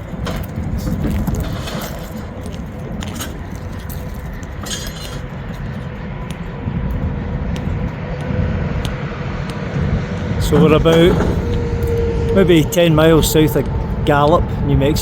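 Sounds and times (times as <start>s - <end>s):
motorcycle engine rumble: 0.0s - 15.0s
wind noise: 0.0s - 15.0s.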